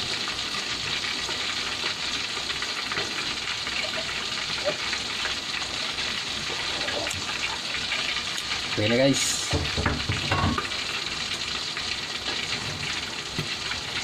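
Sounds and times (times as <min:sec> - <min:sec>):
food sizzling in pans: 0:00.0 - 0:14.0.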